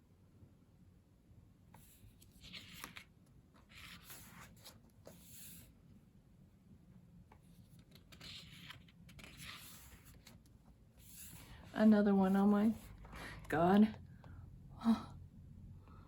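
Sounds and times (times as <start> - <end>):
book pages turning: 1.7 - 5.8, 7.3 - 13.5.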